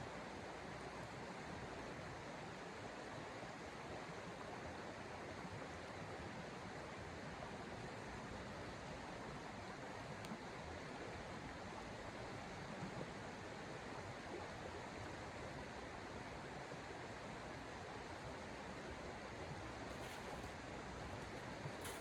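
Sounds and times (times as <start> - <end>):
faint click: 10.2 - 10.4.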